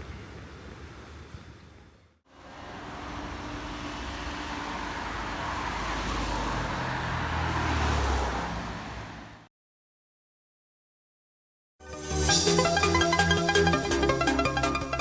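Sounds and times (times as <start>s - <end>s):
engine rumble: 0.0s - 7.6s
tyres hissing on wet pavement: 2.3s - 7.2s
vehicle passing close: 2.3s - 9.4s.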